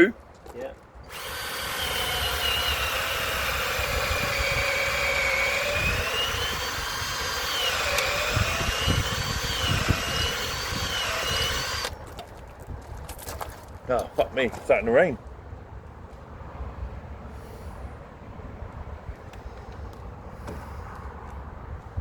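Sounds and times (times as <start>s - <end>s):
electric drill boring into wood: 1.1s - 11.9s.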